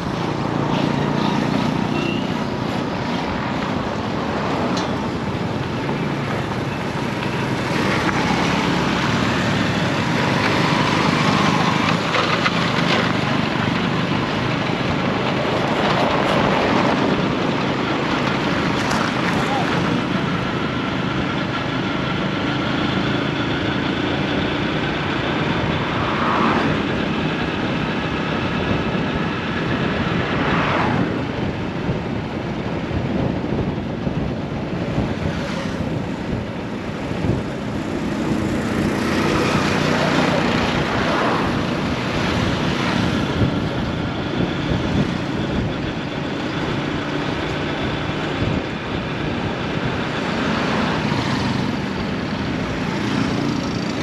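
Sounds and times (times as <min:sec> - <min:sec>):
vehicle engines running: 0:00.0 - 0:54.0
vehicles passing by: 0:00.0 - 0:54.0
wind on microphone: 0:25.4 - 0:54.0.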